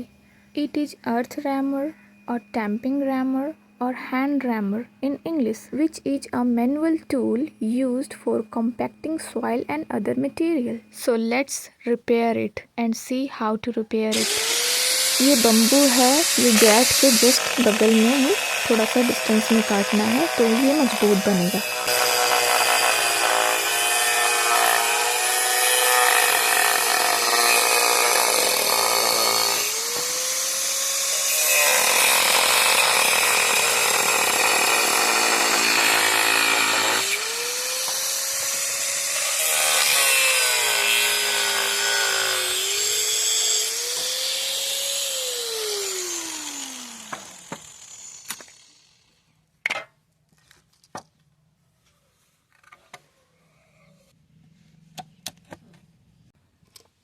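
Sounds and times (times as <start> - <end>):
power tool cutting bamboo: 14.1 - 49.2.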